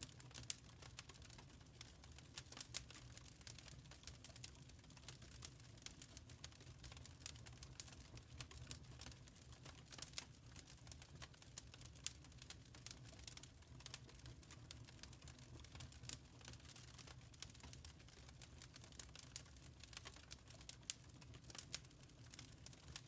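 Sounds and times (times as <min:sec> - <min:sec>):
faint wood fire crackling: 0:00.0 - 0:23.0.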